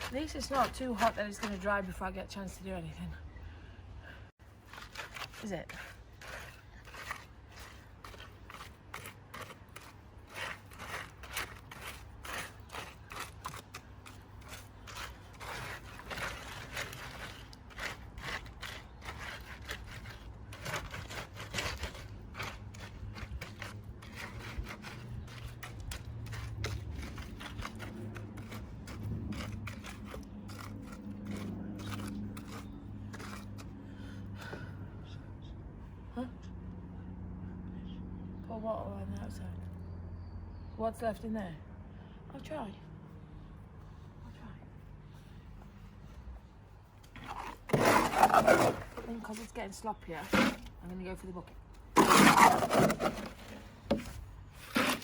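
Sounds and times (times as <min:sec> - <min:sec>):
hand tool scraping wet cement: 0:00.0 - 0:02.5, 0:04.4 - 0:34.6, 0:47.0 - 0:55.0.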